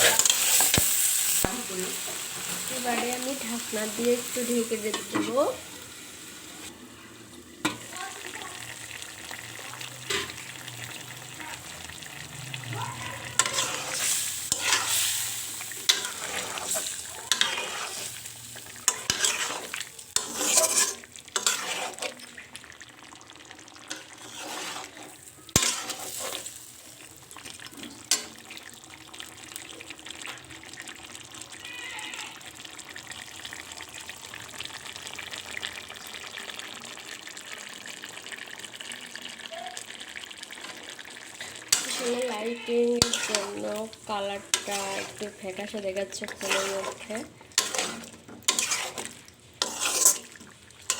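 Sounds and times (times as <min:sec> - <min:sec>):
chicken and potatoes sizzling in oil: 0:00.0 - 0:50.9
spatula scraping and stirring: 0:02.1 - 0:05.6, 0:09.8 - 0:10.5, 0:13.1 - 0:22.4, 0:23.8 - 0:28.4, 0:40.6 - 0:50.9.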